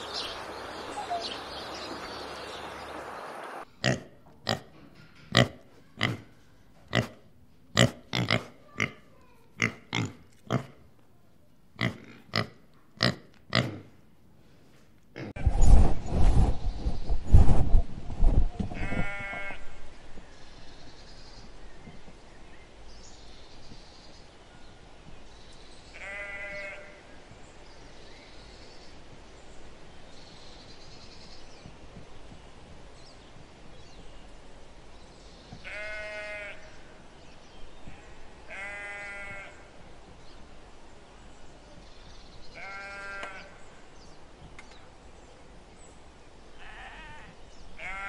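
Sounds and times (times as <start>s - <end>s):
sheep bleating: 26.0s - 27.0s, 35.6s - 36.7s, 38.5s - 39.6s, 42.6s - 43.5s, 46.6s - 48.0s.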